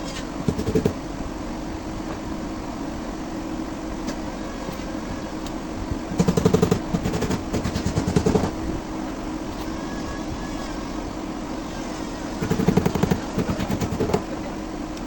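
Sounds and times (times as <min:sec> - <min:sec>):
rapid rattling strikes: 0:00.5 - 0:01.0, 0:06.1 - 0:08.6, 0:12.4 - 0:14.3
power tool humming: 0:09.5 - 0:14.6.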